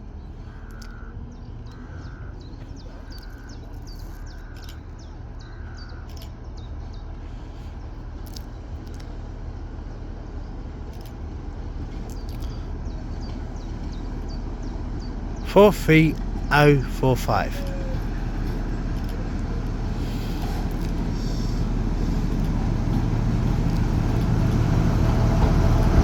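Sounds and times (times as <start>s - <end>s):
diesel locomotive rumble: 6.2s - 26.0s.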